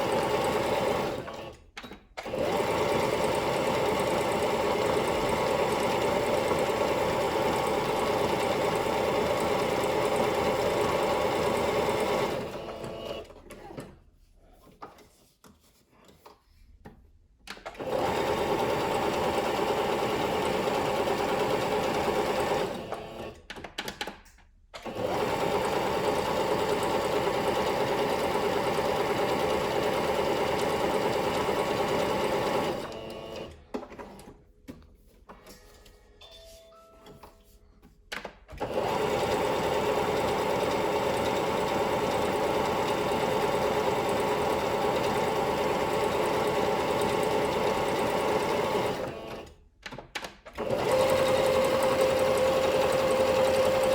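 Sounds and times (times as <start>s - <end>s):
sewing machine running: 0.0s - 1.6s, 2.2s - 13.4s, 17.7s - 23.4s, 24.8s - 33.6s, 38.6s - 49.6s, 50.6s - 53.9s.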